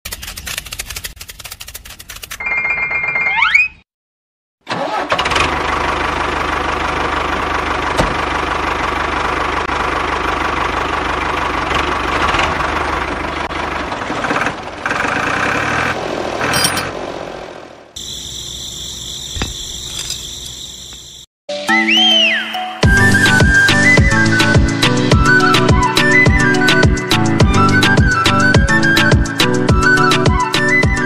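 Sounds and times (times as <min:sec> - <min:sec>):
model tractor engine drone: 0:04.7 - 0:16.8
engine knocking: 0:05.3 - 0:16.0.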